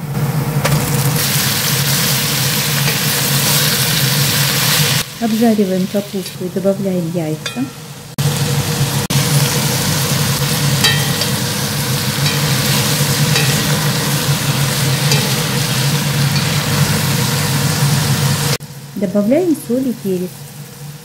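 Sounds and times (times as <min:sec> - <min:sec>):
food sizzling in hot oil: 0:00.1 - 0:21.0
steady low hum: 0:05.0 - 0:20.2
spatula scraping a pan: 0:10.8 - 0:17.1.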